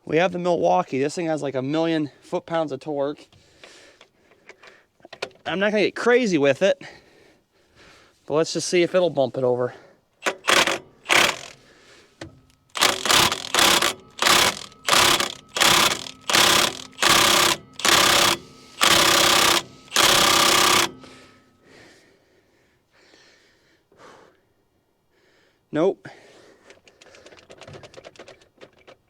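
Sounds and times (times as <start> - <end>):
impact wrench hammering: 10.2 - 11.6, 12.2 - 21.4.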